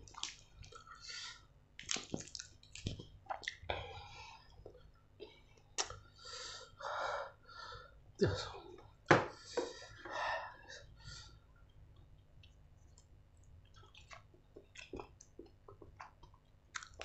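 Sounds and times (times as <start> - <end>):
wet chewing and lip smacking: 0.0 - 1.0, 1.8 - 3.7, 11.6 - 17.0.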